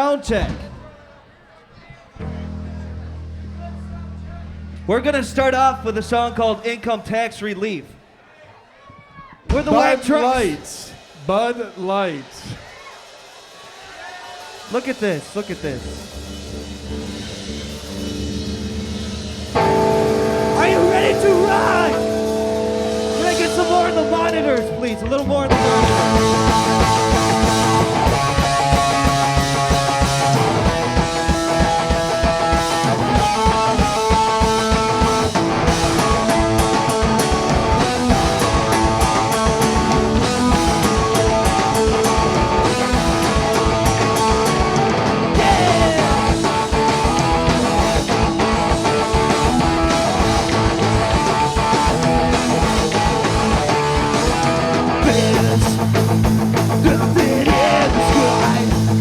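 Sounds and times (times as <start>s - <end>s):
bass guitar: 2.2s - 6.6s, 16.0s - 59.0s
drums fast beat: 9.5s - 59.0s
distorted electric guitars: 15.8s - 59.0s.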